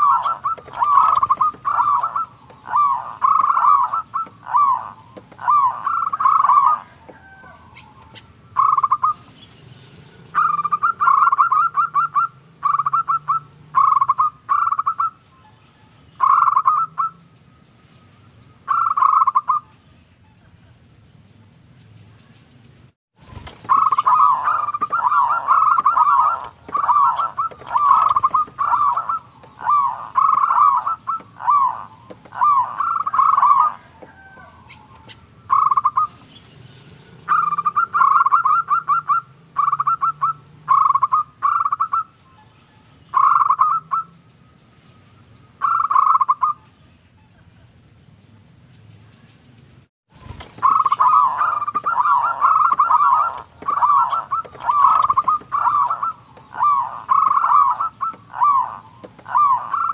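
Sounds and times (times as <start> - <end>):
dove cooing in rolling notes: 0.0 - 9.2, 10.2 - 15.2, 16.2 - 17.2, 18.7 - 19.7, 23.6 - 36.1, 37.2 - 42.5, 43.1 - 44.1, 45.6 - 46.6, 50.6 - 59.9.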